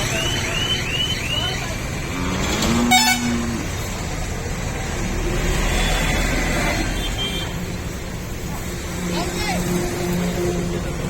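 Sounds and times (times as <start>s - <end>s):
engine rumbling: 0.0s - 11.0s
horn toot: 2.1s - 3.7s.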